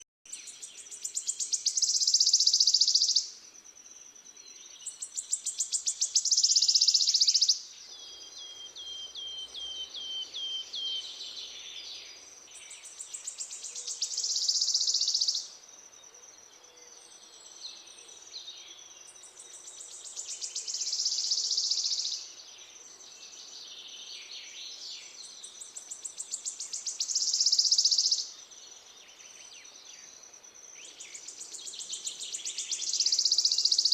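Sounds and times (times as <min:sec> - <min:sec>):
soft bird chirps: 0:00.0 - 0:33.9
songbird buzzy trills: 0:00.3 - 0:15.7, 0:24.7 - 0:33.9.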